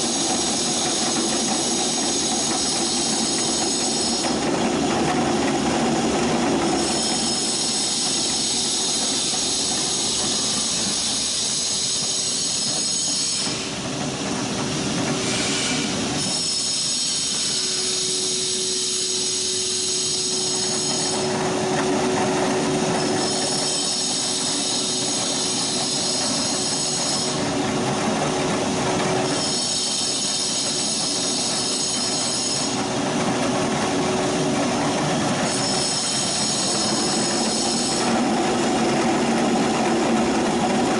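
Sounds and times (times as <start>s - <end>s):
electric mill grinding: 0.0s - 13.7s, 16.2s - 40.9s
high whine: 17.1s - 27.7s.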